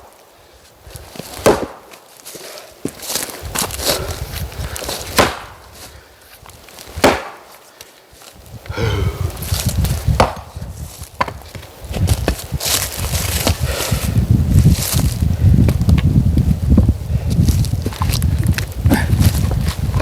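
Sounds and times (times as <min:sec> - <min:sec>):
axe chopping firewood: 0:01.1 - 0:04.0, 0:04.8 - 0:05.7, 0:06.8 - 0:07.6, 0:10.2 - 0:10.6, 0:11.2 - 0:12.5.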